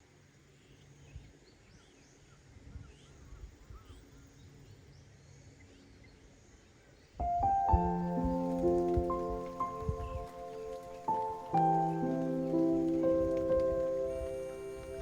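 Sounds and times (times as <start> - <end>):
small birds chirping: 0.6 - 15.0
low uneven rumble: 7.2 - 15.0.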